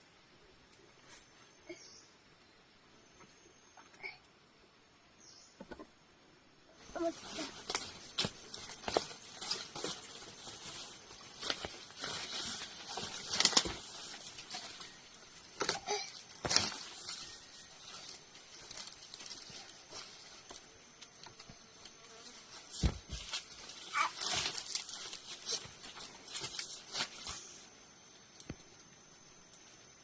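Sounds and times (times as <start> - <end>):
rustling and crackling: 6.8 - 30.0.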